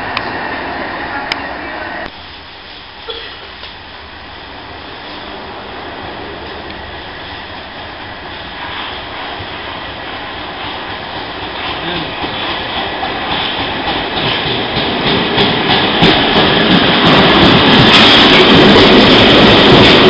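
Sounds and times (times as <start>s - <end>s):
underground train rumbling: 0.0s - 20.0s.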